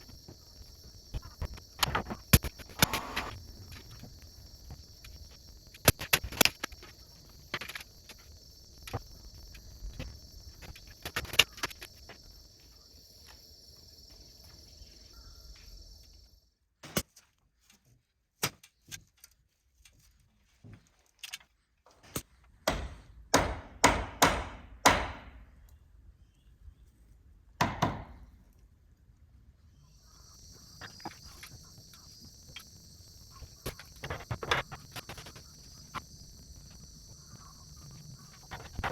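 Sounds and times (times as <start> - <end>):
insects chirring: 0.0 - 16.8, 29.6 - 38.9.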